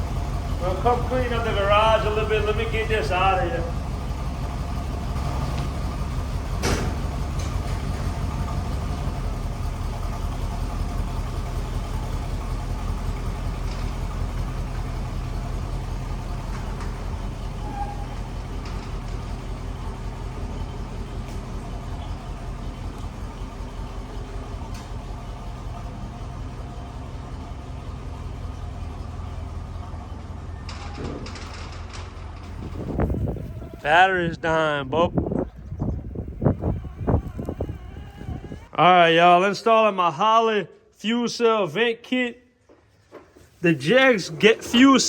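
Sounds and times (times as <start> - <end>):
vehicle engine idling: 0.0 - 39.1, 42.6 - 45.0.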